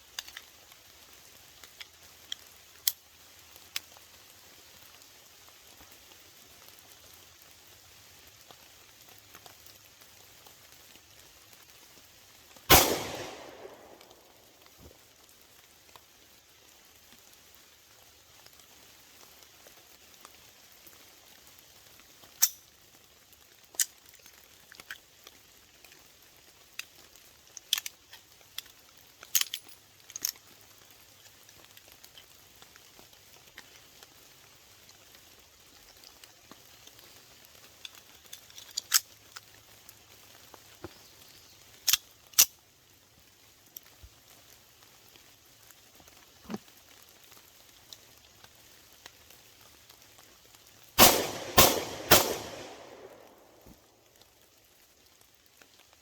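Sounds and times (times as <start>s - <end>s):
light rain patter: 0.0s - 56.0s
pistol shots: 12.7s - 14.3s, 51.0s - 53.6s.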